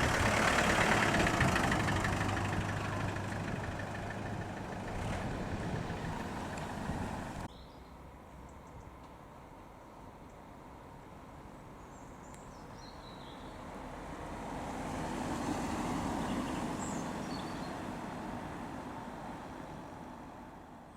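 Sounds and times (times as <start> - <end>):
car driving past: 0.0 - 7.5, 14.0 - 20.2.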